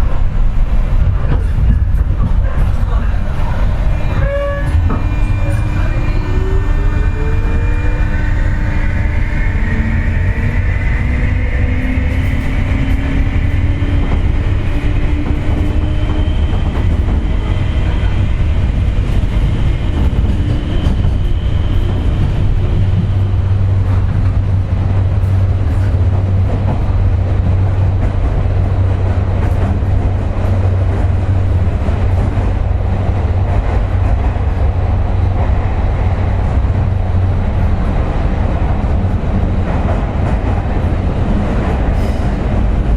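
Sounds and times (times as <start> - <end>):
train rolling noise: 0.0 - 42.9
electric train motor whine: 3.3 - 18.2.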